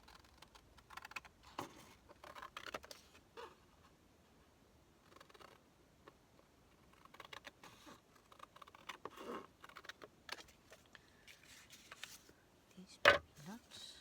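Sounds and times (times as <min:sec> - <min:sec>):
paper rustling: 0:09.8 - 0:12.3.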